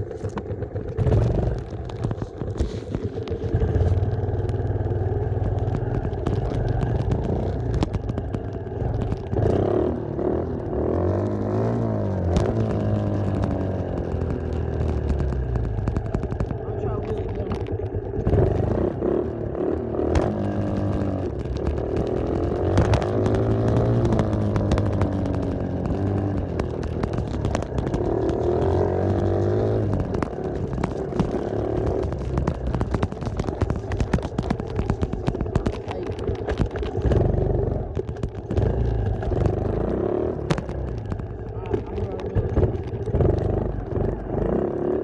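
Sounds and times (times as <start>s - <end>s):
dirt bike engine revving: 16.5s - 36.4s.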